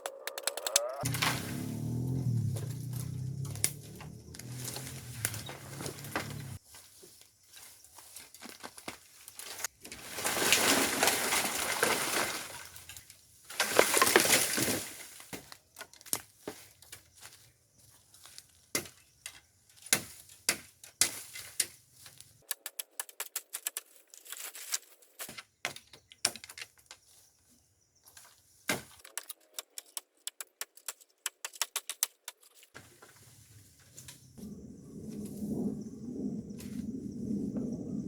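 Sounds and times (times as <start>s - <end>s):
sharp clicks and knocks: 0.0s - 1.3s.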